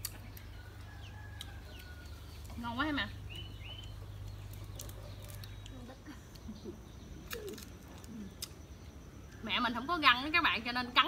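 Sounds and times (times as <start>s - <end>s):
chickens clucking: 0.0s - 8.4s
bird chirping: 0.0s - 11.0s.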